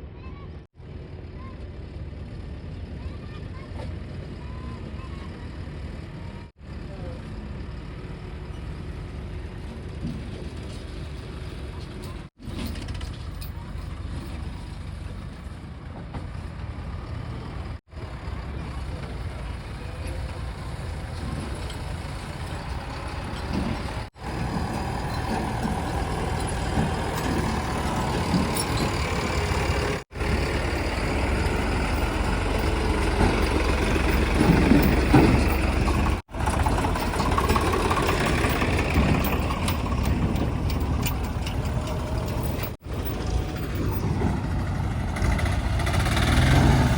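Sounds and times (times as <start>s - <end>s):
heavy diesel machinery running: 0.1s - 46.9s
machinery clanking: 20.7s - 46.9s.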